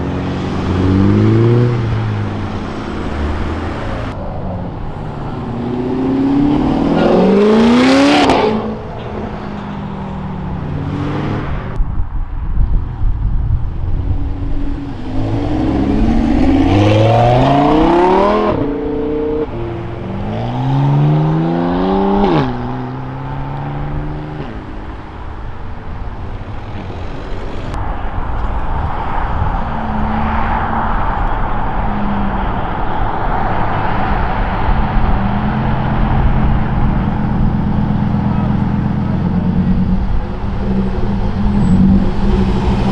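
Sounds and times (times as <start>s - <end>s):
car engine revving hard: 0.0s - 4.2s, 5.3s - 8.8s, 15.0s - 24.6s, 35.1s - 42.9s
car engines running steadily: 0.0s - 42.9s.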